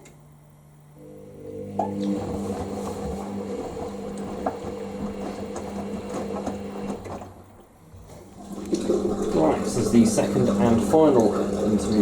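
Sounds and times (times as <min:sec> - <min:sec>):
washing machine motor hum: 0:00.0 - 0:12.0
water swishing: 0:08.0 - 0:12.0.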